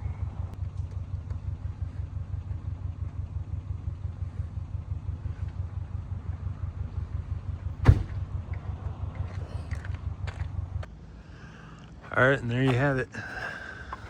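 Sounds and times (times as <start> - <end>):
car engine idling: 0.0 - 14.0
sharp loud knock: 7.8 - 8.2.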